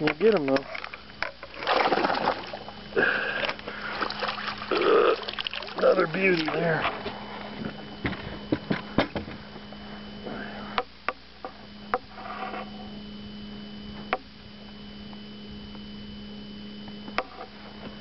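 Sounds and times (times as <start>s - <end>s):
electric hum with high whine: 0.0s - 18.0s.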